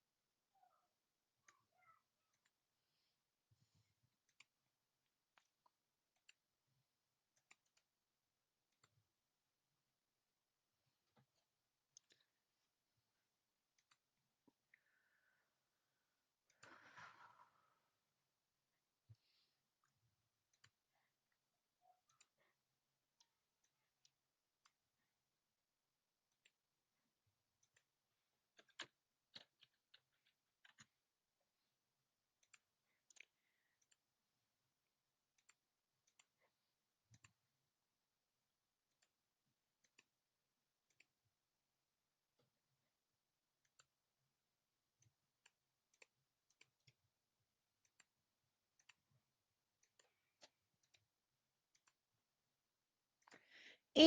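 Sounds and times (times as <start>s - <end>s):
computer mouse and keyboard clicks: 16.4s - 17.9s, 27.6s - 31.1s.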